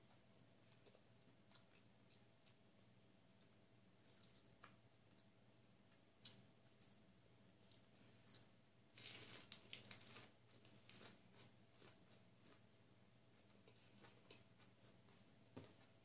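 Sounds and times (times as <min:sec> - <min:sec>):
person chewing with wet clicks: 0:00.6 - 0:02.7, 0:03.4 - 0:08.5, 0:13.4 - 0:14.8.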